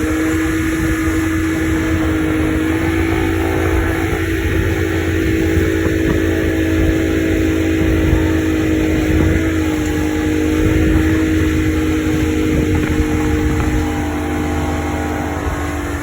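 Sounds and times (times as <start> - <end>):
boat engine droning: 0.0 - 16.0
steady rushing noise: 0.0 - 16.0.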